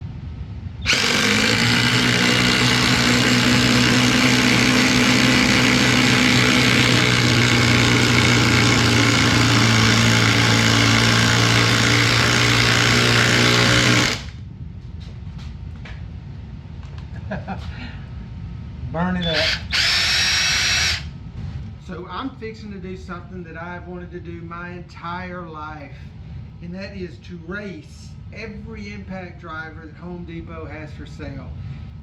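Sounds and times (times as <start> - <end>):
cordless impact driver running: 0.8 - 14.4, 19.3 - 21.1.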